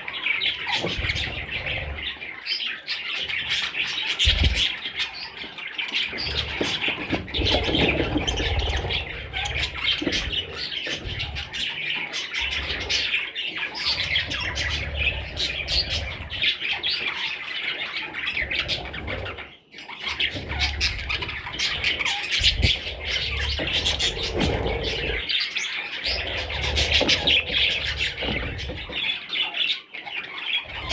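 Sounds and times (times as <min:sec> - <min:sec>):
budgerigars chattering and squawking: 0:00.0 - 0:30.9.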